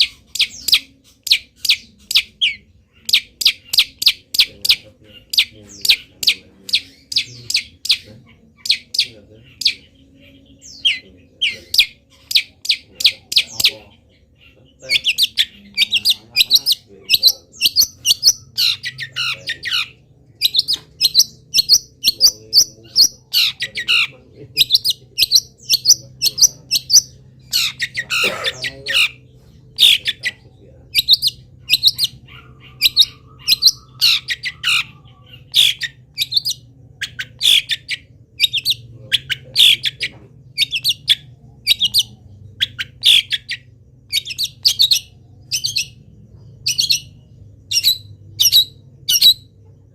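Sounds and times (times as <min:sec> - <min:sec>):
bird singing rapid chirps: 0:00.0 - 0:49.9
harsh bird squawk: 0:00.0 - 0:49.9.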